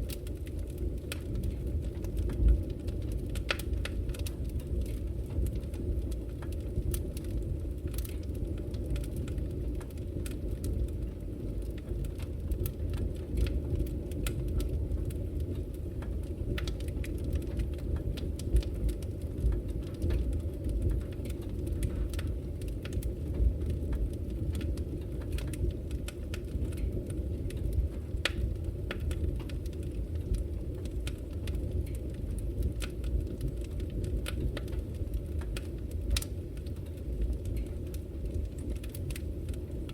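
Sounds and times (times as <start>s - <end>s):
fire rumbling: 0.0s - 39.9s
wood fire crackling and popping: 0.0s - 39.9s.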